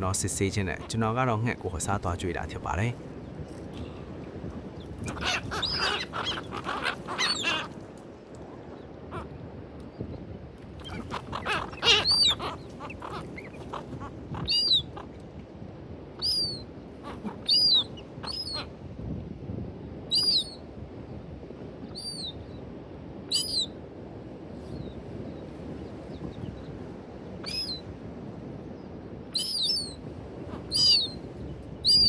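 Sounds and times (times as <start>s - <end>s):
birds calling: 0.0s - 7.9s, 10.8s - 15.2s, 16.2s - 18.7s, 27.4s - 27.9s, 29.3s - 32.0s.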